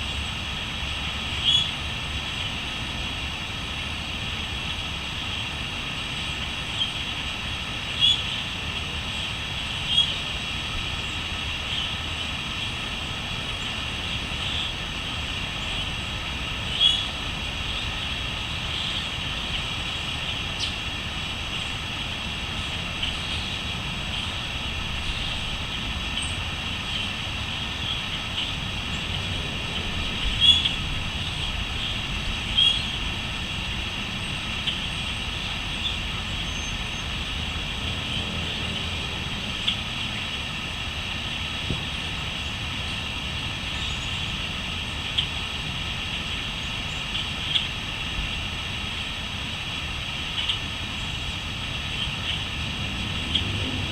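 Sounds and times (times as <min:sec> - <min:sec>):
crickets chirping: 0:14.4 - 0:41.6.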